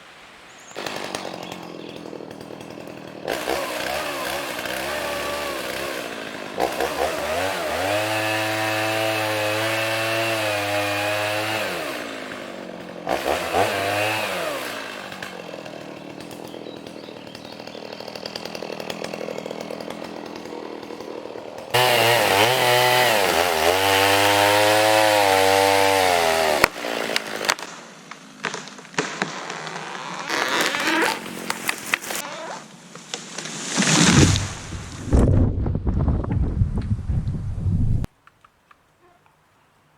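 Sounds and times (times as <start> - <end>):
sawmill engine running: 0.8 - 27.6.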